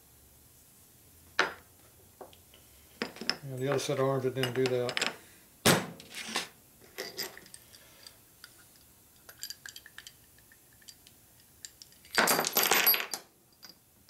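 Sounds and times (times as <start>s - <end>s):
metal tools clinking on workbench: 3.0s - 5.2s, 6.1s - 8.1s, 11.6s - 13.8s.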